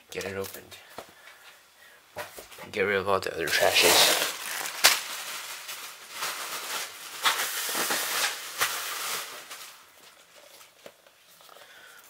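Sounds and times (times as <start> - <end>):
plastic shrink-wrap crinkling: 3.4 - 12.0.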